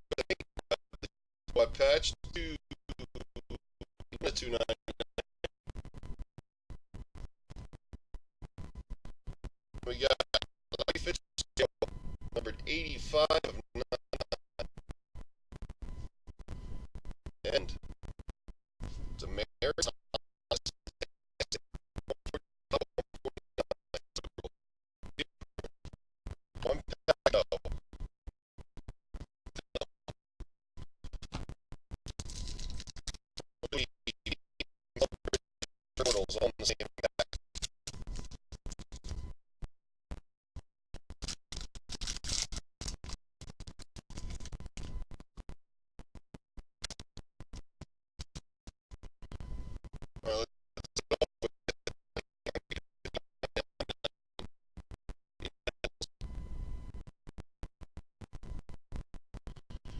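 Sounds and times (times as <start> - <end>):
broken audio snippets: 0.1 - 6.2, 36.0 - 39.2
scratchy noise: 0.1 - 6.2, 7.0 - 14.9, 29.2 - 29.9, 31.0 - 34.4, 35.0 - 39.3, 41.0 - 45.6, 49.3 - 54.1, 54.8 - 56.9.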